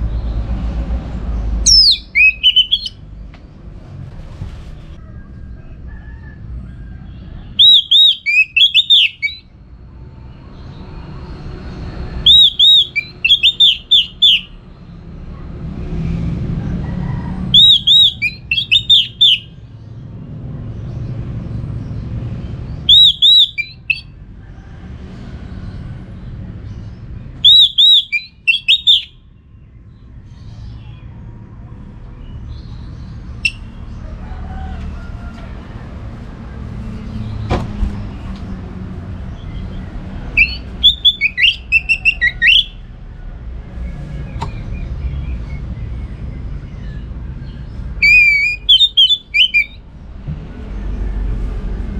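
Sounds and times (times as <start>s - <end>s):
thrush singing: 1.7s - 2.9s, 7.6s - 9.4s, 12.3s - 14.5s, 17.6s - 19.5s, 22.9s - 24.0s, 27.5s - 29.1s, 40.4s - 42.8s, 48.0s - 49.8s.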